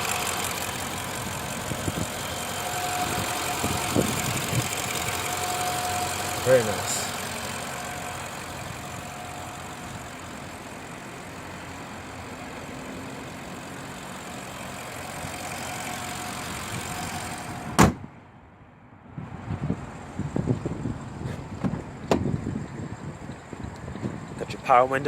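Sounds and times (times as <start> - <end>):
car engine idling: 0.0 - 18.5, 19.7 - 25.0
car door shutting: 17.6 - 18.1, 21.2 - 22.4.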